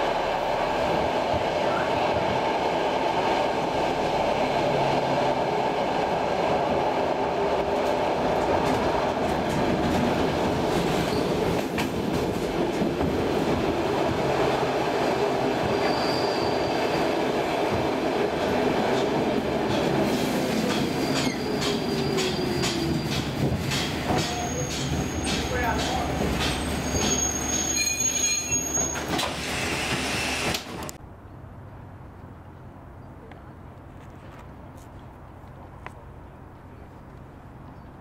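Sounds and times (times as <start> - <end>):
electric train rolling: 0.7 - 31.0
brief high squeals: 15.8 - 16.8, 26.8 - 30.5.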